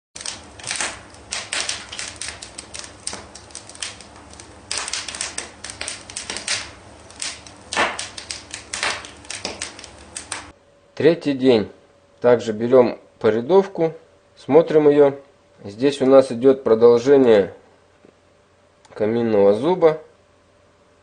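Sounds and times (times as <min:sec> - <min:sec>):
sharp clicks and taps: 0:00.3 - 0:10.5.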